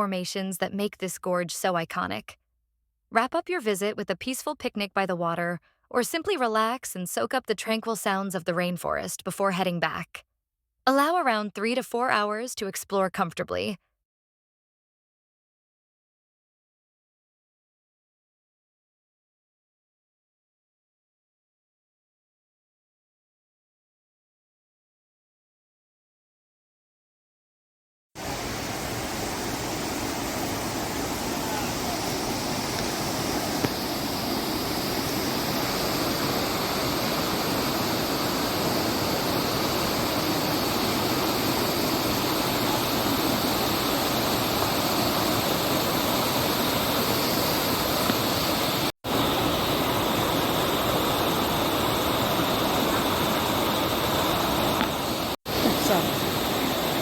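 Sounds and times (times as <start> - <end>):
river rushing over boulders: 28.2 - 57.0.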